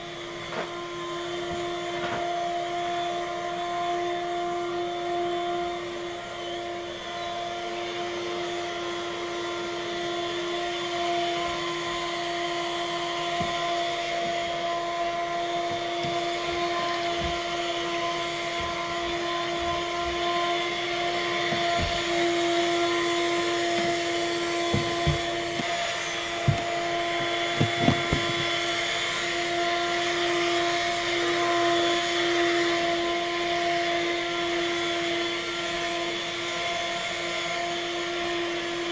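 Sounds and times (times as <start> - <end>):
vacuum cleaner humming: 0.0 - 38.9
sharp clicks and knocks: 26.4 - 28.6.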